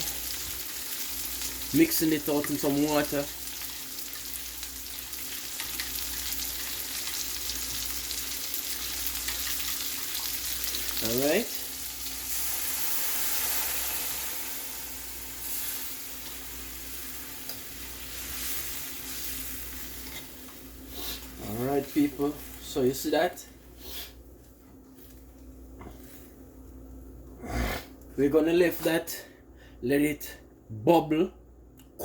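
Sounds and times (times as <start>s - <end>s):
meat sizzling in a pot: 0.0s - 22.5s.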